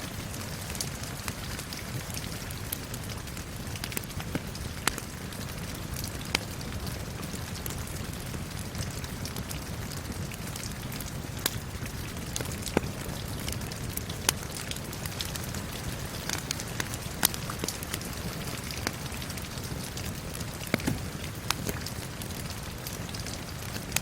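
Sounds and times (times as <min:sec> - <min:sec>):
fire crackling and popping: 0:00.0 - 0:24.0
steady rain: 0:00.0 - 0:24.0.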